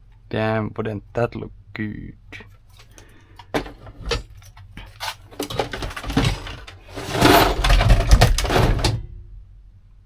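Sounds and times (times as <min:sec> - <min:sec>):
rustling and clattering: 0:02.6 - 0:09.1
objects rummaged through: 0:02.7 - 0:09.0.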